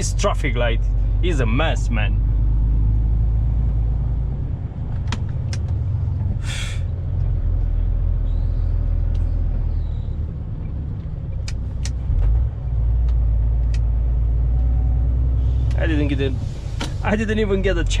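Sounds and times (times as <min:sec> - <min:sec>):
diesel engine rumbling: 0:00.0 - 0:18.0
air brake hiss: 0:06.4 - 0:06.9, 0:16.4 - 0:17.1.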